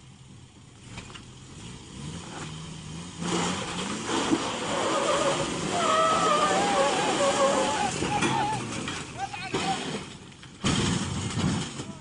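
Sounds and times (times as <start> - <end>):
car engine revving under load: 0.8 - 9.2.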